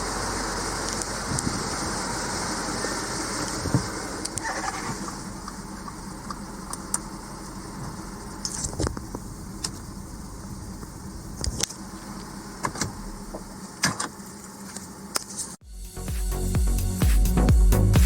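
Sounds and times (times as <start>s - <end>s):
car engine idling: 0.0s - 15.2s.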